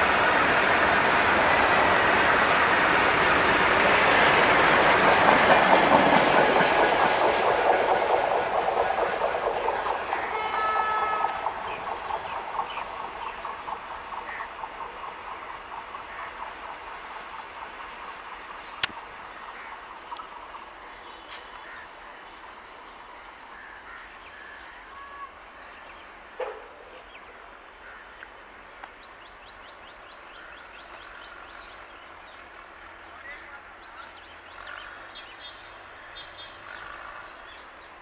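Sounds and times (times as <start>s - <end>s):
train wheels clattering: 0.7s - 19.1s
birds chirping: 7.9s - 17.4s.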